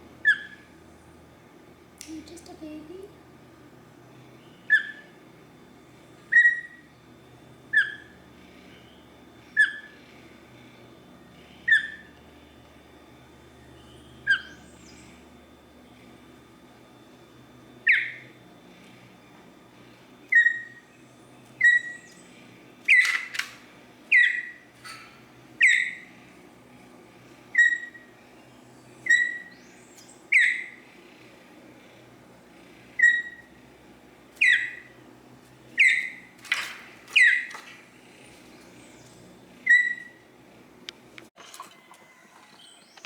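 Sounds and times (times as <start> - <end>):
fledgling bird chirping: 0.2 - 0.8, 4.3 - 5.2, 5.8 - 7.0, 7.6 - 10.1, 11.2 - 12.4, 13.3 - 16.0, 17.7 - 18.4, 20.2 - 26.5, 27.2 - 33.7, 34.3 - 40.3.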